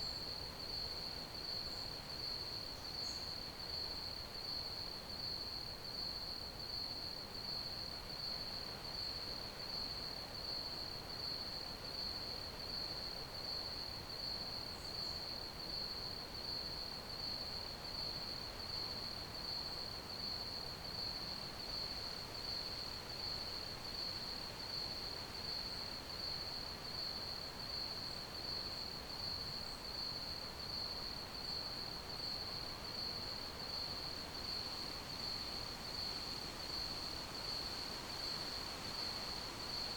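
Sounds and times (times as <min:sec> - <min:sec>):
faint background hiss: 0:00.0 - 0:39.9
crickets chirping: 0:14.3 - 0:39.9.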